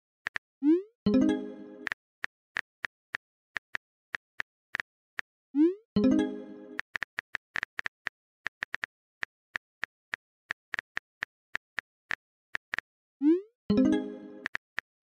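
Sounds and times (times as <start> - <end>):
phone notification tone: 1.1 - 1.9.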